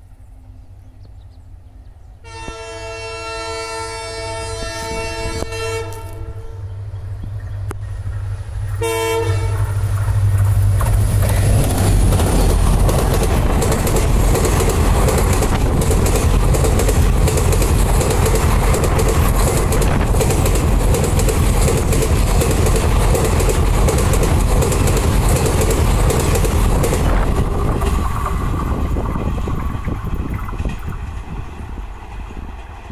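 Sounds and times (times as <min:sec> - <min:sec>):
train rumbling past: 0:00.0 - 0:32.9
locomotive horn blast: 0:02.2 - 0:06.7, 0:08.8 - 0:09.8
rapid wheel clicks on rails: 0:09.8 - 0:28.7.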